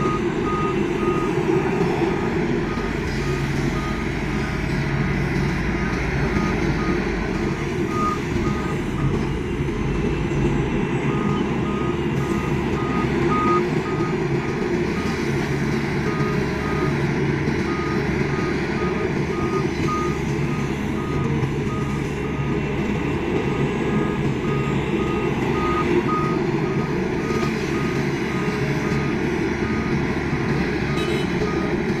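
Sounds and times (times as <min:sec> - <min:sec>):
excavator diesel engine running: 0:00.0 - 0:32.0
warning alarm beeps: 0:17.7 - 0:22.6.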